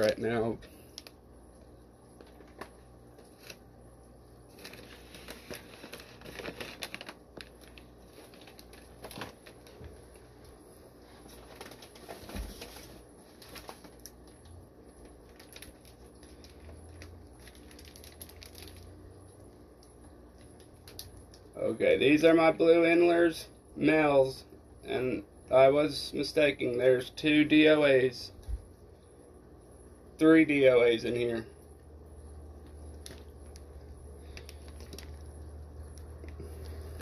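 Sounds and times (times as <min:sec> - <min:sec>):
plastic bags crinkling: 0:04.5 - 0:09.9, 0:11.2 - 0:14.5, 0:15.1 - 0:19.0, 0:32.9 - 0:37.0.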